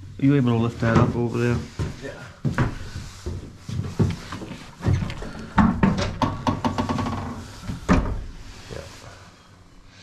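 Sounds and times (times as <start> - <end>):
mower parts knocking and clunking: 4.8 - 8.3.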